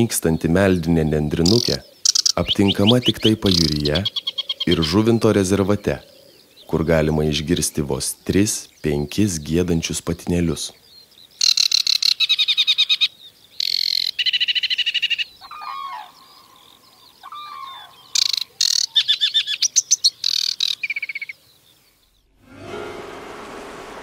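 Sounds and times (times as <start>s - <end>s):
bird singing rattling trills: 0.0s - 22.3s
lower sliding bird notes: 22.2s - 24.0s.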